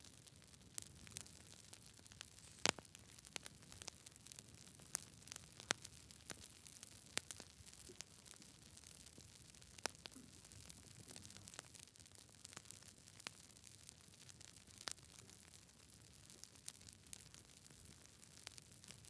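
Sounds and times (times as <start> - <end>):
faint low hiss: 0.0 - 11.6
campfire crackling and popping: 0.0 - 19.0.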